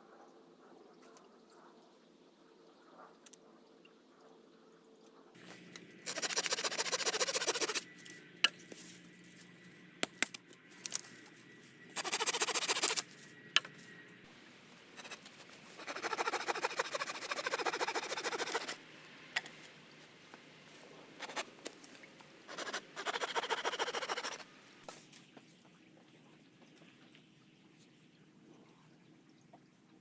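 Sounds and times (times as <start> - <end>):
fast rasping scraping: 6.0 - 7.9, 12.0 - 13.1, 15.0 - 18.8, 21.2 - 21.5, 22.5 - 24.4.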